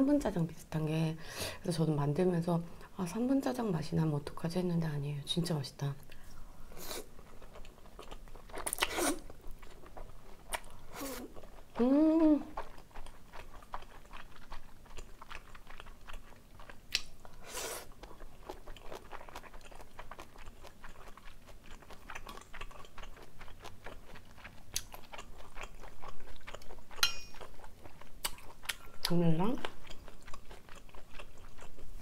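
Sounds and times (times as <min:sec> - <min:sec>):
wet crunchy chewing: 0:06.8 - 0:32.0
small mouth clicks: 0:16.9 - 0:17.1.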